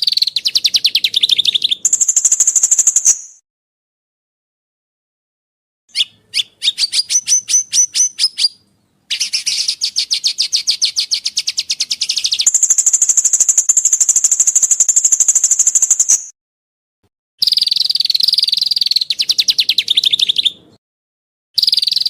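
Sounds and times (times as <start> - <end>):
songbird chirps and trills: 0.0 - 3.4, 5.9 - 16.3, 17.4 - 20.8, 21.6 - 22.0.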